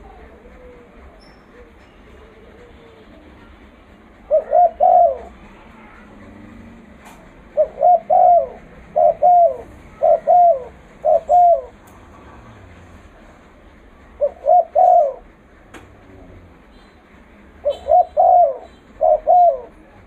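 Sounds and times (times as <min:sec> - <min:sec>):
dove cooing: 0:00.0 - 0:03.6, 0:04.2 - 0:06.2, 0:07.0 - 0:11.8, 0:14.2 - 0:15.3, 0:17.6 - 0:20.0.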